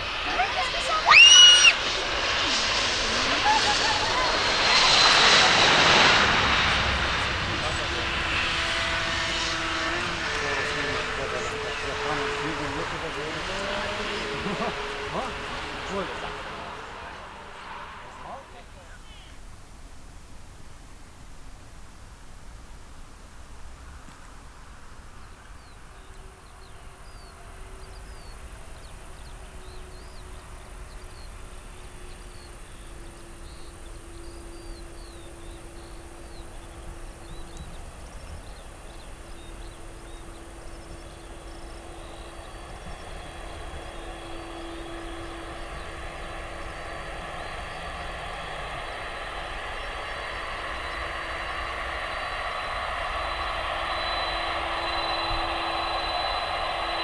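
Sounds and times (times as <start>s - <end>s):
aircraft engines humming: 0.0s - 57.0s.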